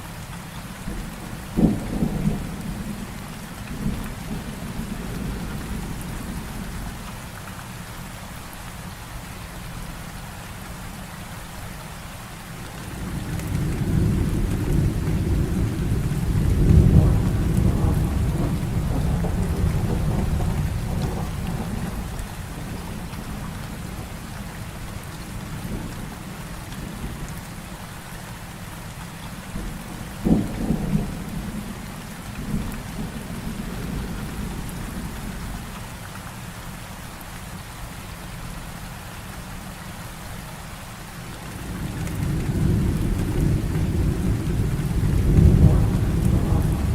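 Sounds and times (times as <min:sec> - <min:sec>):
heavy rain falling: 0:00.0 - 0:46.9
thunder rolling: 0:13.0 - 0:24.5, 0:41.6 - 0:46.9
sharp thunder crack: 0:42.5 - 0:46.9.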